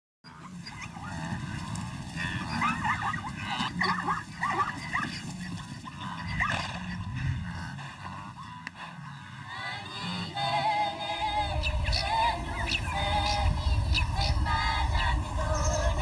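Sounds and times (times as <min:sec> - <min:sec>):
low background rumble: 0:00.6 - 0:16.0.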